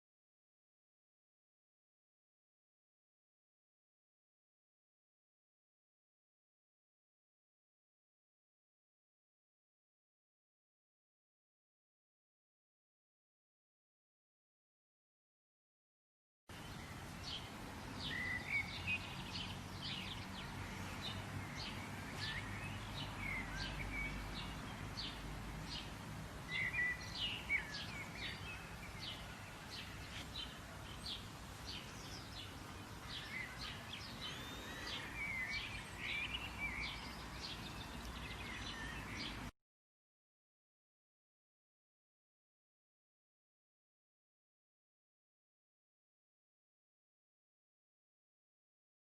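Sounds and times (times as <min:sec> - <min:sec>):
small birds singing: 0:16.5 - 0:39.5.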